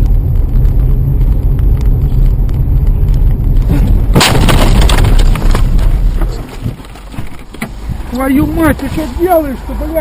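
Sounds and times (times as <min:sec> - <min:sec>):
heavy low road rumble: 0:00.0 - 0:10.0
car crash with cracking: 0:03.6 - 0:07.8.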